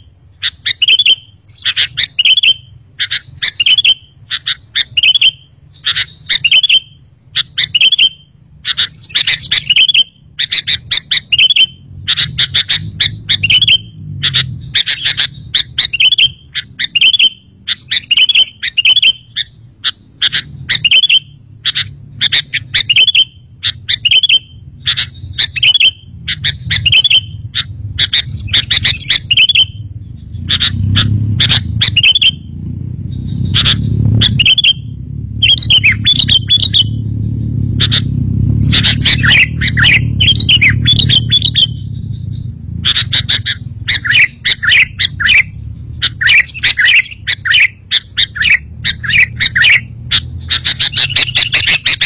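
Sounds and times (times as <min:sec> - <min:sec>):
bird calling chirpy phrases: 0:00.0 - 0:52.0
low rumble: 0:23.4 - 0:52.0.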